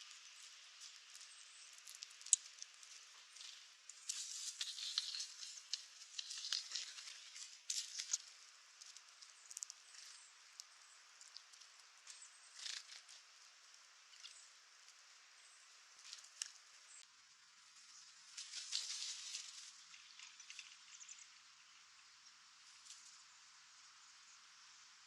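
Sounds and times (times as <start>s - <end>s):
rustling and scratching: 0.0s - 10.4s, 11.2s - 13.4s, 17.7s - 21.0s.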